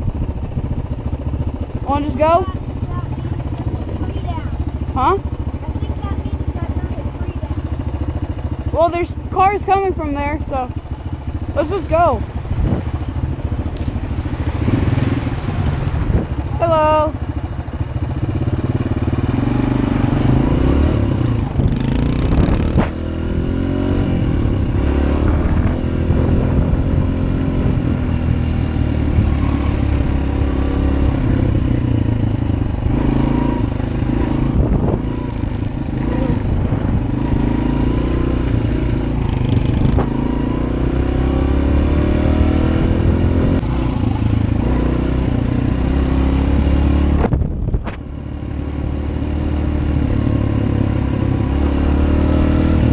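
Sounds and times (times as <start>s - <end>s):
dirt bike engine accelerating: 0.0s - 52.9s.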